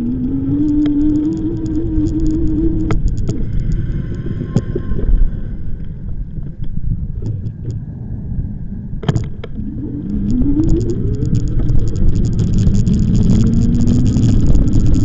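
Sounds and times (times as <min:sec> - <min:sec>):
rising whine: 0:00.0 - 0:15.0
wind buffeting microphone: 0:00.0 - 0:15.0
rattle of clicks: 0:00.1 - 0:04.8, 0:09.0 - 0:15.0.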